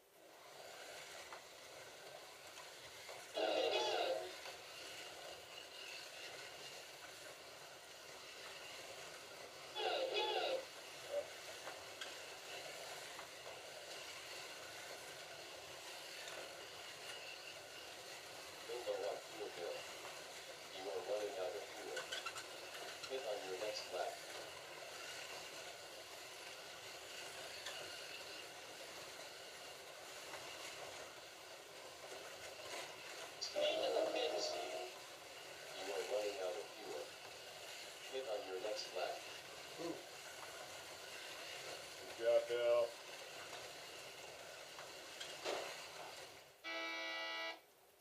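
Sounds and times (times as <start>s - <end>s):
slot car motors whirring: 0.2s - 25.9s, 45.5s - 47.6s.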